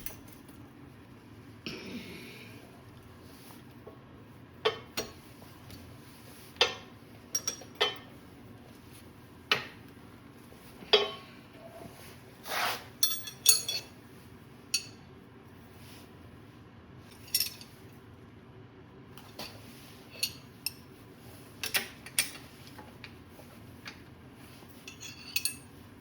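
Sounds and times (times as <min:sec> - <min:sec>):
metal tools clinking: 0:13.0 - 0:13.9, 0:17.1 - 0:17.8, 0:24.8 - 0:25.7.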